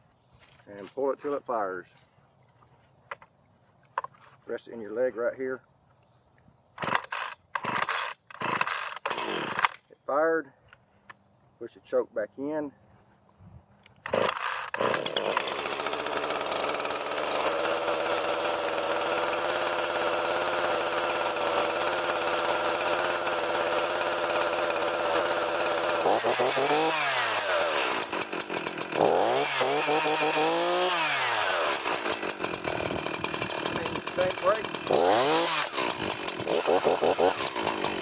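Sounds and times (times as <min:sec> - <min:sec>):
chainsaw starting and revving: 0:06.8 - 0:09.8, 0:14.0 - 0:38.0.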